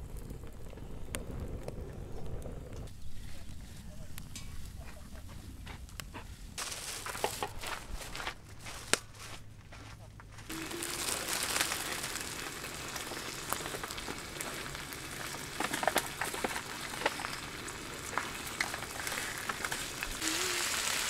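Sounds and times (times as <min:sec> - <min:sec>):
food sizzling on griddle pan: 0:10.5 - 0:21.0.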